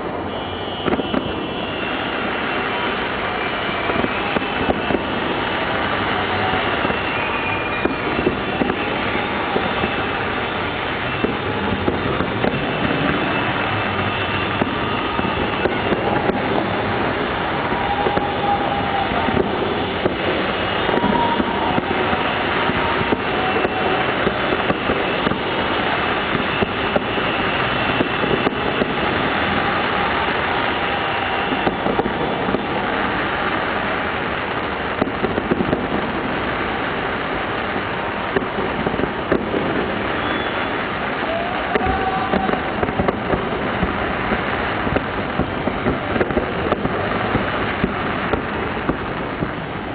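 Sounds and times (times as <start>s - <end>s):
crowd cheering and whistling: 0.0s - 34.0s, 39.5s - 43.5s
fireworks crackling and banging: 0.0s - 49.9s.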